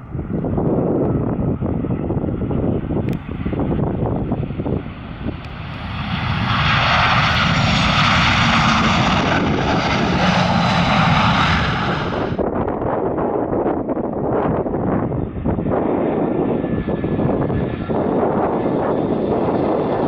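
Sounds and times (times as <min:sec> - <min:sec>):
airliner engine noise: 0:00.0 - 0:20.0
wind rumble on microphone: 0:00.0 - 0:20.0.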